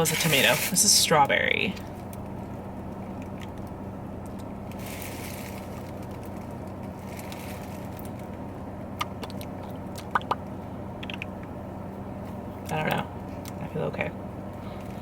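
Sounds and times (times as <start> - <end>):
car engine idling: 0.0 - 15.0
soft rustles: 1.8 - 8.4.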